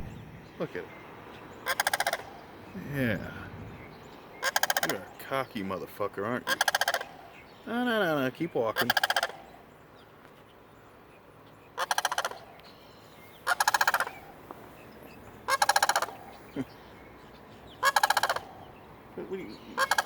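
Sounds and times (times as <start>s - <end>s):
turkey gobbling: 1.6s - 5.2s, 6.4s - 7.3s, 8.7s - 9.4s, 11.8s - 12.5s, 13.4s - 14.3s, 15.5s - 16.7s, 17.8s - 18.6s, 19.6s - 20.0s.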